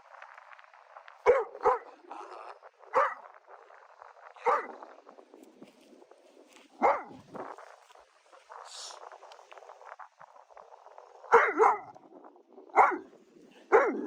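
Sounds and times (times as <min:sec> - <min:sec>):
dog barking: 0:01.2 - 0:02.0, 0:02.9 - 0:03.3, 0:04.4 - 0:04.8, 0:06.8 - 0:07.2, 0:11.3 - 0:12.0, 0:12.7 - 0:14.0.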